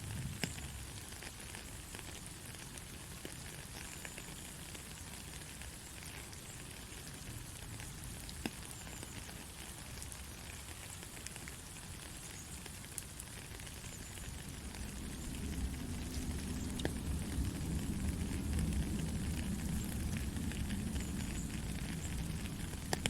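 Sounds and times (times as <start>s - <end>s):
soft rain falling: 0.0s - 23.0s
low rumble: 14.4s - 23.0s.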